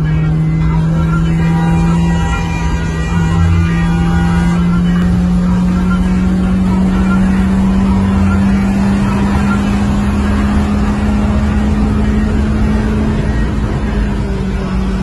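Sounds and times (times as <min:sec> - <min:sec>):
car engine accelerating: 0:00.0 - 0:15.0
low road rumble: 0:00.0 - 0:15.0.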